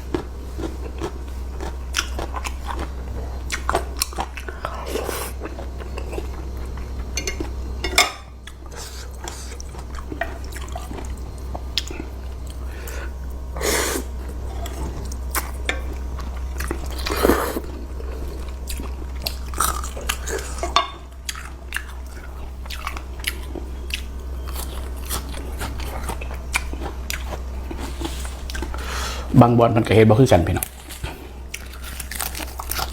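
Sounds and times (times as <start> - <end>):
chewing and biting noodles: 0.0 - 7.6, 21.2 - 29.0, 30.8 - 32.9
steady low hum: 0.0 - 32.9.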